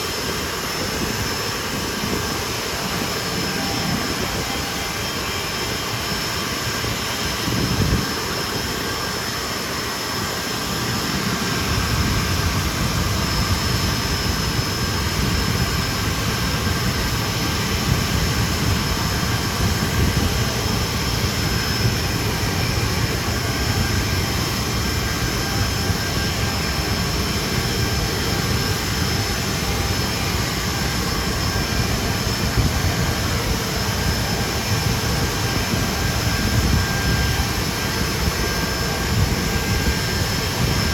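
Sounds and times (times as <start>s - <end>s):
jet engines whining: 0.0s - 40.9s.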